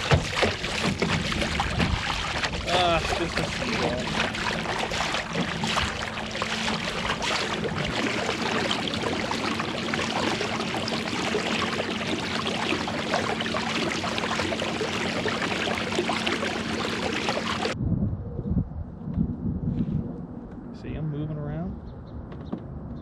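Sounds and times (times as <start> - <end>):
water lapping against a kayak hull: 0.0 - 17.8.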